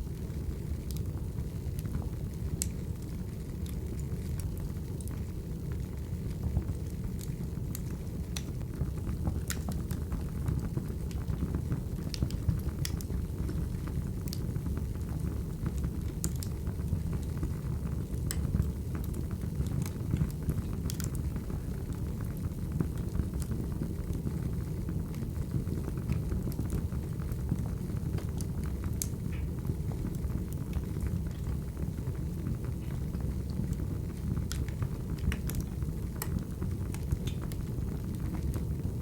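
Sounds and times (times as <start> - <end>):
low rumble of flames: 0.0 - 39.0
fire pops and snaps: 0.2 - 39.0.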